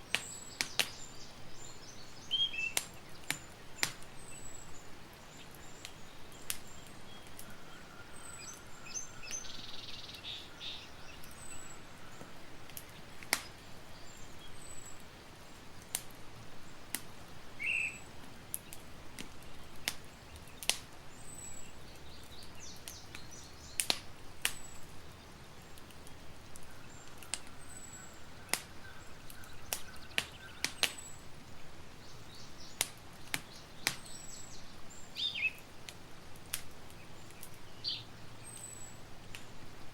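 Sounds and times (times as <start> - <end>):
birds chirping: 0.0 - 16.9, 17.5 - 35.8, 36.6 - 39.9
campfire crackling and popping: 0.0 - 39.9.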